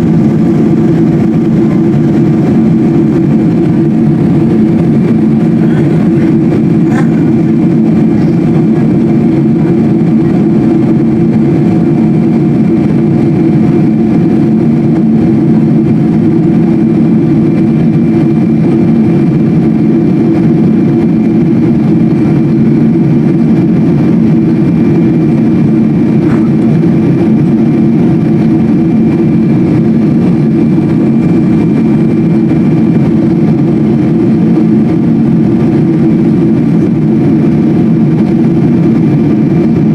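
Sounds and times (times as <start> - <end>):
airliner cabin drone: 0.0 - 39.9.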